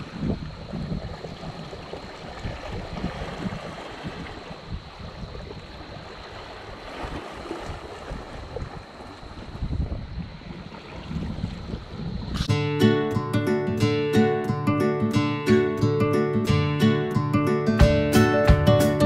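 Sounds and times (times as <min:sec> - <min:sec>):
small waves washing against rocks: 0:00.0 - 0:09.7
wind buffeting microphone: 0:00.0 - 0:12.5.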